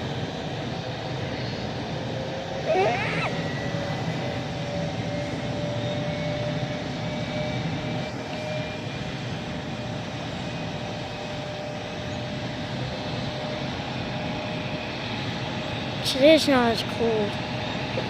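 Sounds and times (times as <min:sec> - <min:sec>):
jet engines whining: 0:00.0 - 0:18.0.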